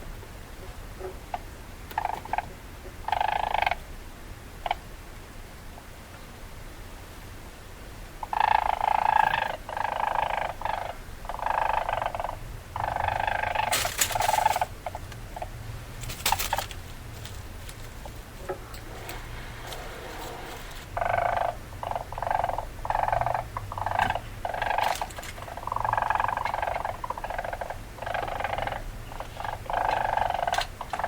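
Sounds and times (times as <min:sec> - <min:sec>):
weasel calling: 0:08.2 - 0:15.6, 0:19.8 - 0:31.0.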